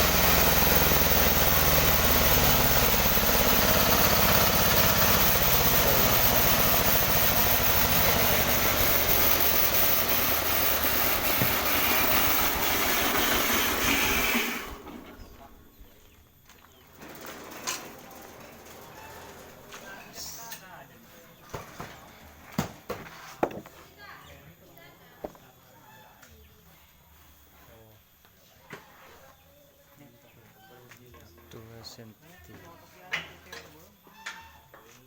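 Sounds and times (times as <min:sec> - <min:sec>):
sawmill engine running: 0:00.0 - 0:20.4.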